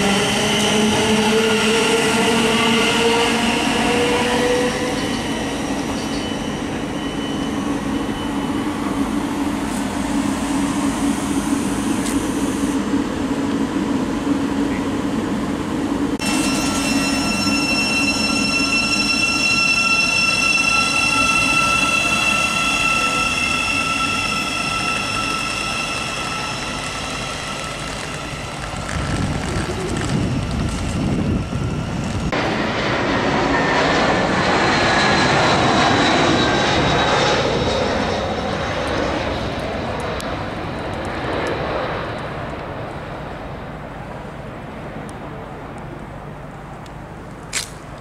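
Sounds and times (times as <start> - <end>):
high-pitched whining tones: 0.0 - 32.4
rumble of train wheels: 0.0 - 48.0
train motor whine: 15.6 - 32.3.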